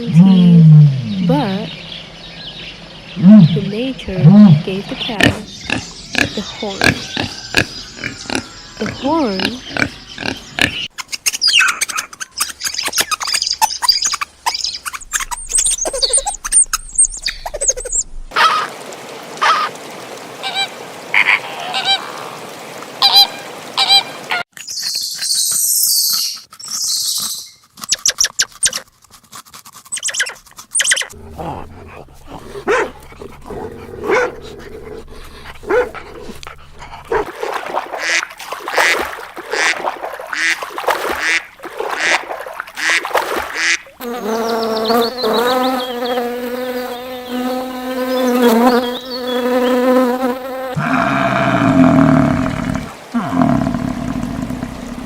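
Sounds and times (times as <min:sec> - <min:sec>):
long pitched animal call: 0:50.8 - 0:55.0.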